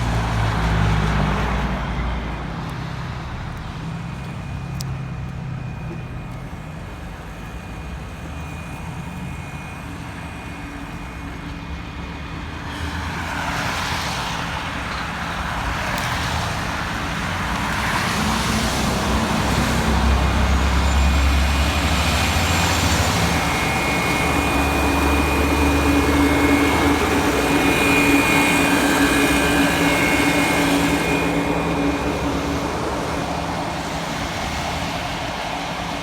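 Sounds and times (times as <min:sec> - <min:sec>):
truck driving past: 0:11.8 - 0:36.0.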